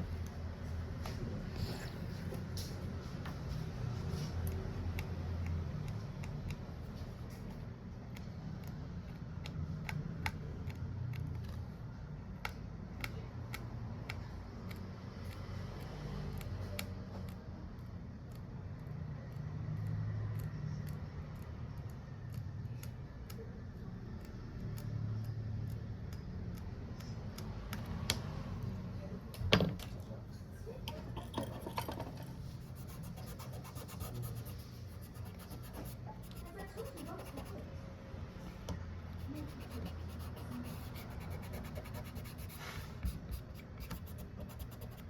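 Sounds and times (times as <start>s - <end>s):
steady low hum: 30.1s - 45.0s.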